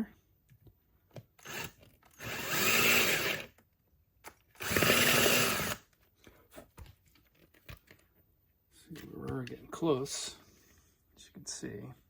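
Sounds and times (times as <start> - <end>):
power drill drilling: 1.4 - 3.5, 4.6 - 5.8.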